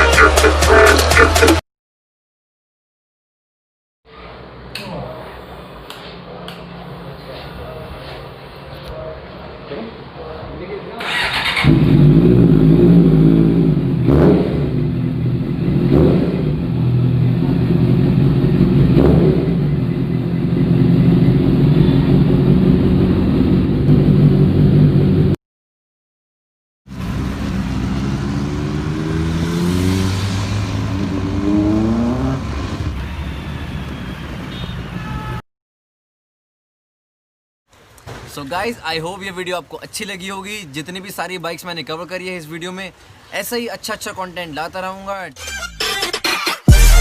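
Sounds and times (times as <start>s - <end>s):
motorcycle engine accelerating: 11.0s - 25.4s, 26.9s - 33.1s.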